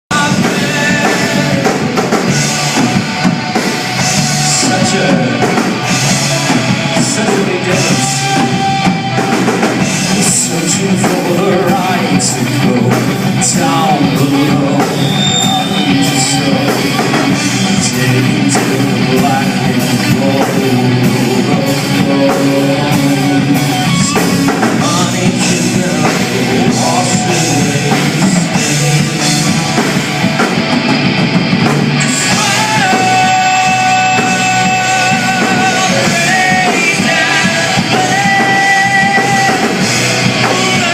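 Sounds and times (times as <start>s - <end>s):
person singing: 0.1s - 30.2s, 32.0s - 40.9s
rock band playing live: 0.1s - 40.9s.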